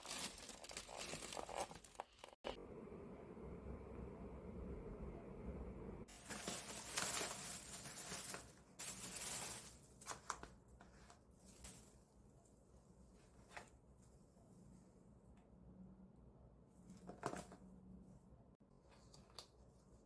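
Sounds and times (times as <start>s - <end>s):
packaging rustling and tearing: 0.0s - 2.4s.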